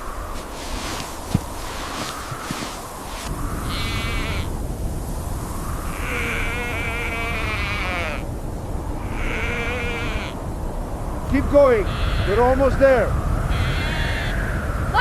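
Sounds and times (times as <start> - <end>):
wind rumble: 0.0 - 15.0
sheep bleating: 3.7 - 4.5, 6.0 - 8.2, 9.0 - 10.4, 11.9 - 12.4, 13.5 - 14.3.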